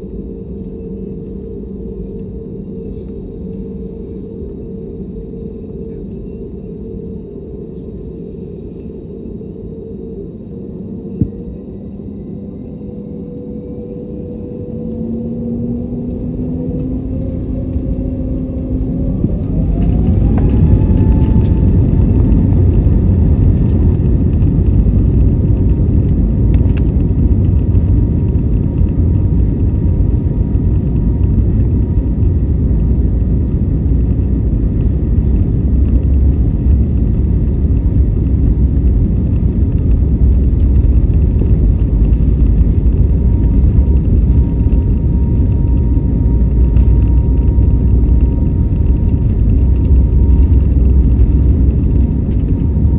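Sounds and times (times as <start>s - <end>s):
jet engine whine: 0.0s - 52.9s
jet engines spooling up: 13.7s - 52.9s.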